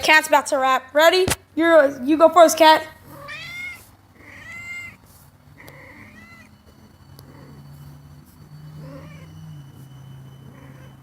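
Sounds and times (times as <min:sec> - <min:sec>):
cat meowing: 0:03.0 - 0:05.0, 0:05.6 - 0:06.6, 0:08.8 - 0:09.4.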